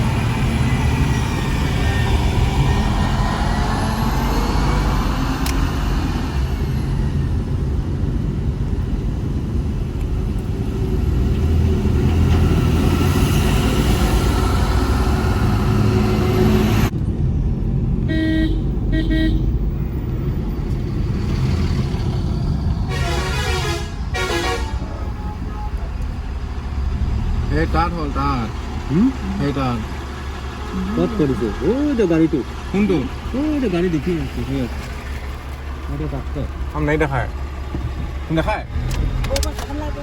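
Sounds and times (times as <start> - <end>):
vehicle engine and road rumble: 0.0 - 40.0
short horn honks: 18.0 - 19.6, 22.9 - 25.6
warbling multi-tone horn: 18.1 - 19.5.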